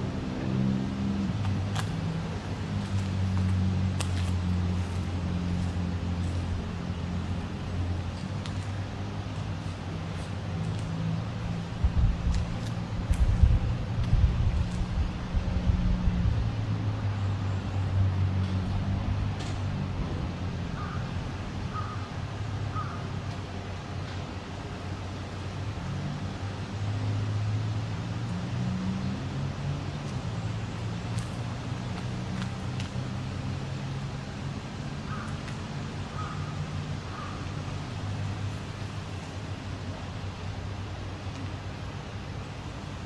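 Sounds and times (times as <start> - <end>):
vehicle engine humming: 0.0 - 43.0
crow cawing: 20.8 - 21.0, 21.7 - 22.1, 22.7 - 23.1, 35.1 - 35.3, 36.1 - 37.4
bird calling: 20.8 - 21.1, 21.7 - 22.1, 22.7 - 23.1, 35.0 - 35.4, 36.1 - 37.5.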